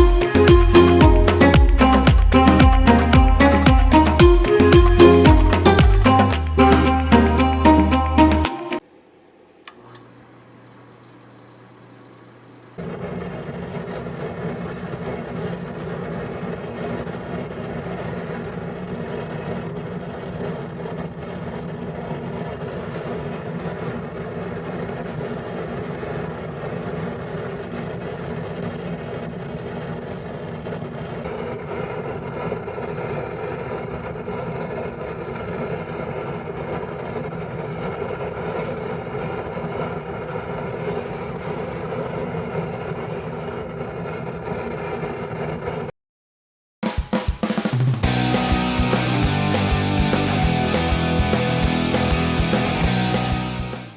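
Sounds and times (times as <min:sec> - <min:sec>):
oil heater hum and rush: 0:47.2 - 0:53.9.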